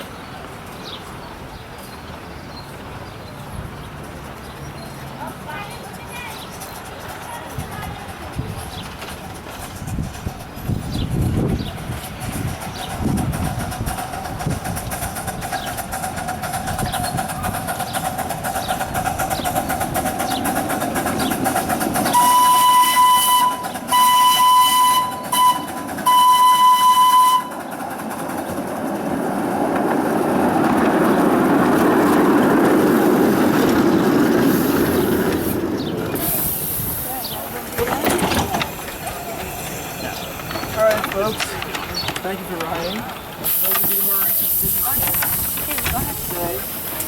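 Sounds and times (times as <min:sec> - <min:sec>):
rumble of approaching train: 0:00.0 - 0:47.0
steam locomotive whistle blasts: 0:22.1 - 0:27.6.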